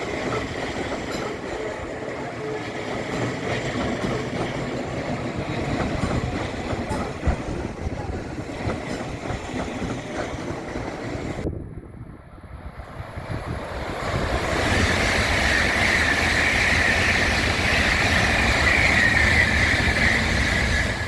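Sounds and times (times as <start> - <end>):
train rumbling on track: 0.0 - 21.0
wheels clicking over rail joints: 2.6 - 11.0.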